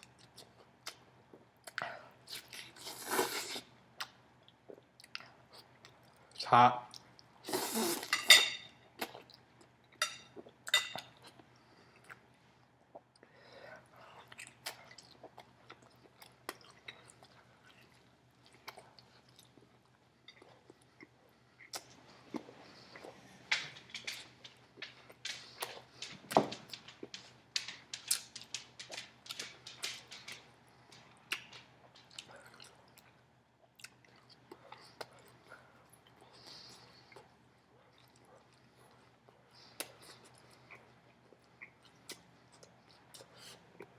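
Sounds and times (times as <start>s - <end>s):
person chewing food: 0.0s - 6.3s, 6.9s - 43.9s
man blowing on food: 7.5s - 8.2s.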